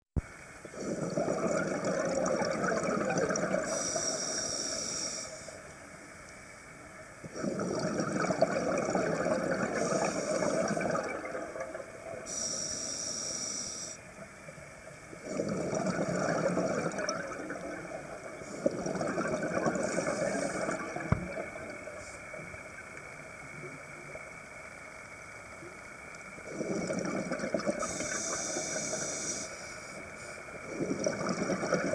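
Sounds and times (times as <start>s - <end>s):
exhaled bubbles underwater: 0.6s - 4.5s, 7.2s - 12.6s, 15.1s - 24.2s, 26.3s - 29.1s, 30.4s - 31.9s
high hiss of inhaling: 3.7s - 5.6s, 12.3s - 14.0s, 27.8s - 30.4s.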